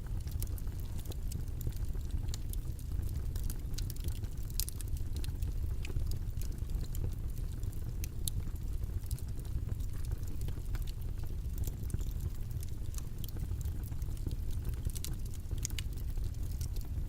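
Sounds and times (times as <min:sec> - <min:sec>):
faint small clicks and taps: 0:00.3 - 0:07.2, 0:11.6 - 0:17.0.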